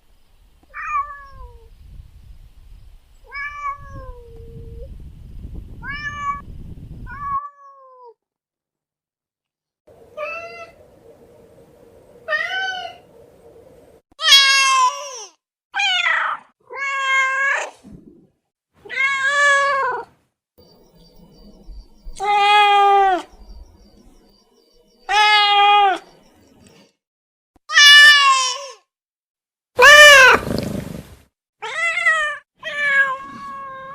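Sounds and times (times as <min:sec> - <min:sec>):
cats meowing: 0:00.7 - 0:01.6, 0:03.3 - 0:04.2, 0:05.8 - 0:06.4, 0:10.2 - 0:10.8, 0:18.8 - 0:20.1, 0:22.2 - 0:23.3, 0:25.1 - 0:26.0, 0:29.8 - 0:30.6, 0:31.6 - 0:33.9.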